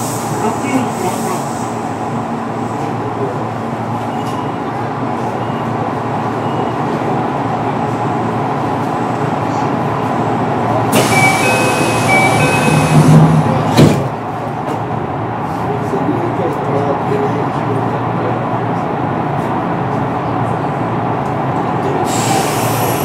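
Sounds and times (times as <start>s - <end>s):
electric train rumbling on rails: 0.0s - 23.0s
two-tone ringing: 11.0s - 13.2s.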